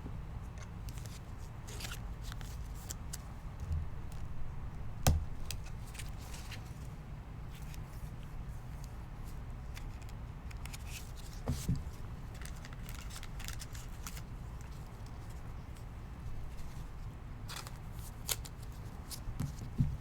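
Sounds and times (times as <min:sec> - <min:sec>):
cards clicking and scraping: 0:00.5 - 0:04.3, 0:12.3 - 0:14.8, 0:17.5 - 0:19.7
soft thud: 0:05.0 - 0:05.5.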